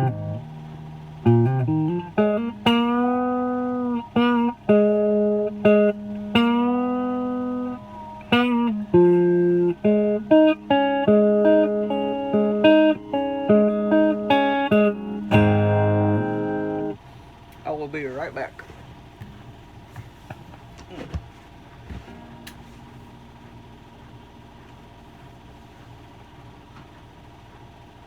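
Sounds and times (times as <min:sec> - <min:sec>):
clean electric guitar notes: 0:00.0 - 0:17.0.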